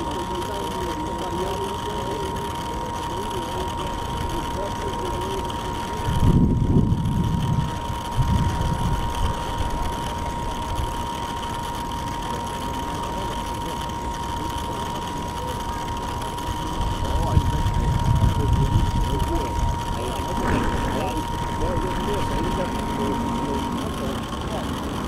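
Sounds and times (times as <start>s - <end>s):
model boat motor whine: 0.0s - 25.0s
wind buffeting microphone: 6.1s - 9.5s, 17.2s - 23.4s.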